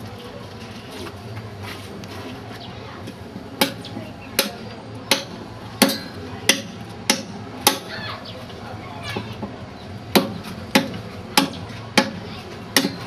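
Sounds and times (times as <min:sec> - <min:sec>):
sharp chopping strikes: 0:03.6 - 0:07.9, 0:10.1 - 0:13.0.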